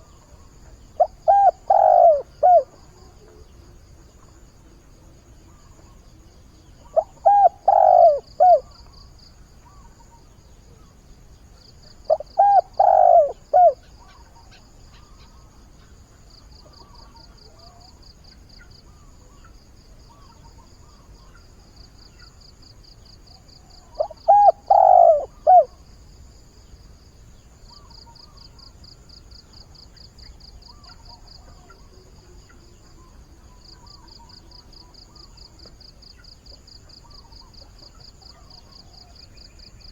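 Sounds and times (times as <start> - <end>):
dove cooing: 0.0 - 3.7, 6.8 - 8.8, 12.1 - 14.2, 23.8 - 25.8
insects trilling faintly: 0.0 - 39.9.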